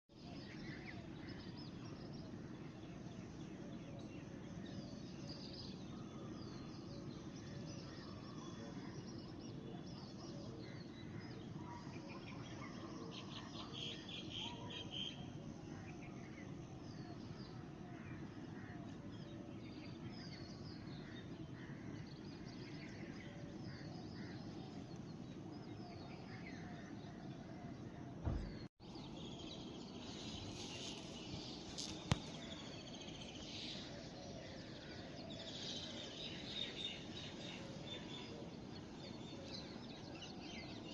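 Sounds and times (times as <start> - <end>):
songbirds chirping: 0.1 - 40.9
thump: 28.2 - 28.7.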